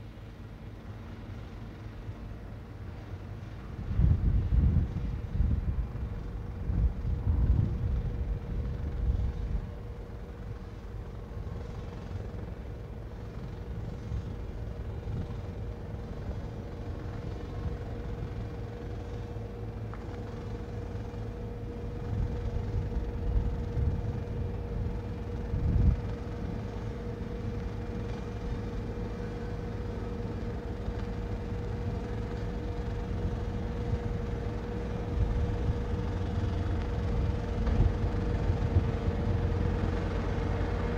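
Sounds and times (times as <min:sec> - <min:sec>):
wind buffeting microphone: 0:03.7 - 0:09.8, 0:21.9 - 0:28.8, 0:32.4 - 0:40.9.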